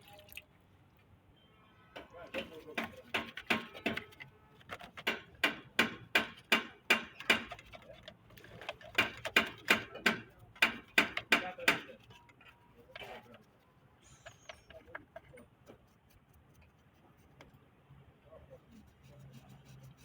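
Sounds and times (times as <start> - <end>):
stiff brush scrubbing: 15.7 - 17.4, 18.5 - 20.0.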